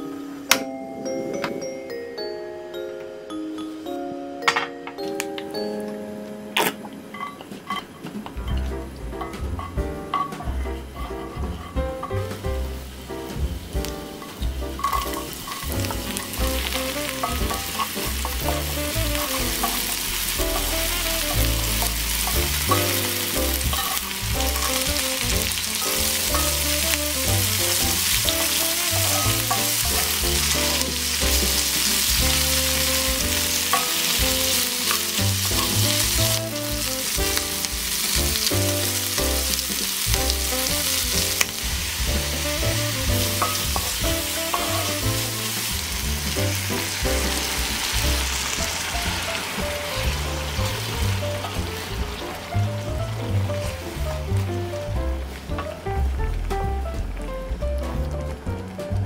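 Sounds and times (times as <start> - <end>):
wooden spatula stirring: 7.2 - 55.8
food sizzling in skillet: 9.2 - 55.6.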